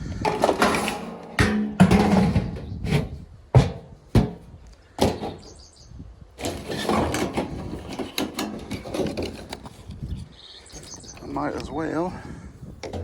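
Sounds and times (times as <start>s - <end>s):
rustling and clattering: 0.0s - 5.6s, 6.4s - 11.0s.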